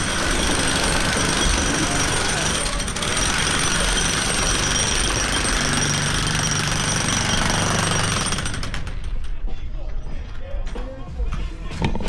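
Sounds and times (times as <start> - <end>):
power tool rattling and whining: 0.0 - 9.1.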